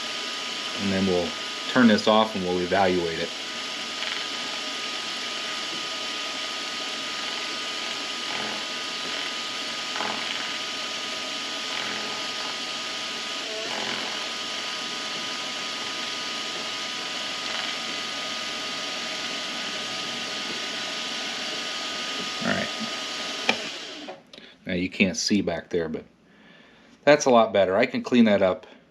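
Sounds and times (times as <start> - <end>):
lathe running with whine: 0.0 - 24.2
lathe tool cutting aluminium: 3.0 - 24.1.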